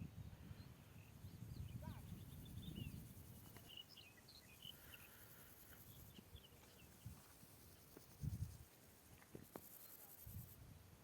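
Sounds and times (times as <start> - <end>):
faint birds chirping: 0.0 - 8.2.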